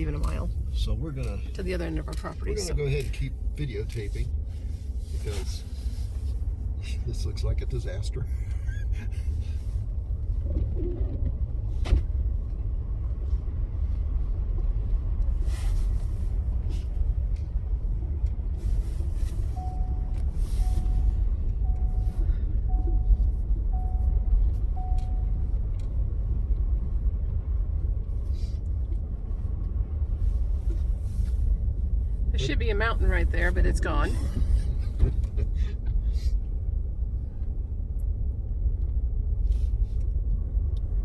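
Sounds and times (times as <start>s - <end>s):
truck rumbling on snowy road: 0.0s - 41.0s
dashboard chime: 19.6s - 25.4s.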